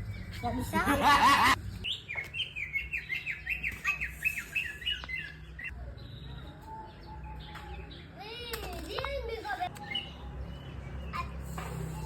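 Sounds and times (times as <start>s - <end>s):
bird chirping: 1.5s - 8.2s.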